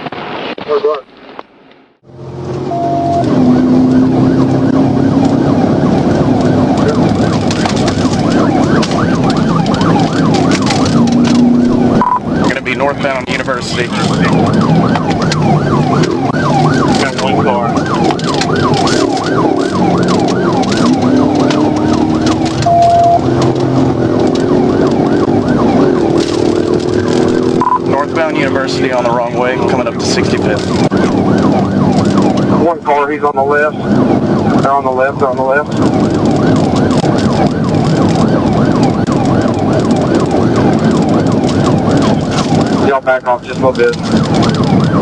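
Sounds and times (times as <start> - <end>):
car engine: 0.8 - 45.0
police siren yelp: 2.5 - 45.0
short steady beep: 2.7 - 3.2, 12.0 - 12.2, 22.7 - 23.2, 27.6 - 27.8.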